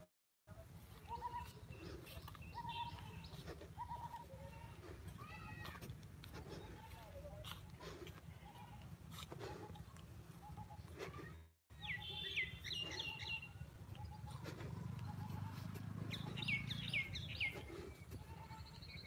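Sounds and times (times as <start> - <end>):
birds chirping: 0.8 - 4.8, 9.4 - 19.0.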